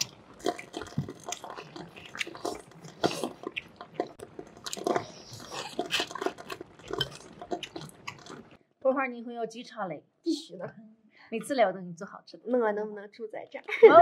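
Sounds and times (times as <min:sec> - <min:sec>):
man chewing and lip smacking: 0:00.0 - 0:08.6.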